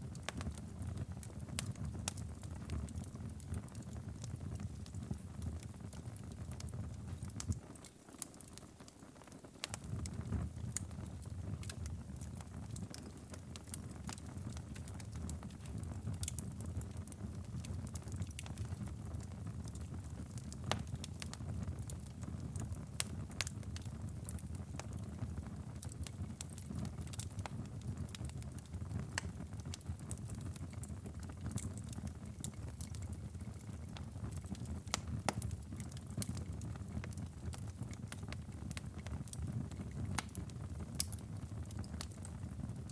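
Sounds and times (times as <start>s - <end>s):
wood fire crackling and popping: 0.0s - 42.9s.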